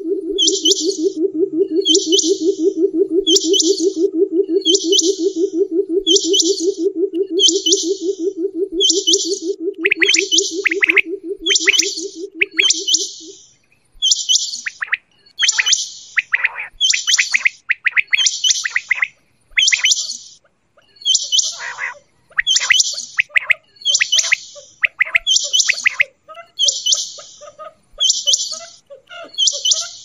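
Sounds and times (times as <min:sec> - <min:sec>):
low rapid pulsing: 0:00.0 - 0:13.3
quail calling: 0:00.0 - 0:13.4, 0:14.8 - 0:30.0.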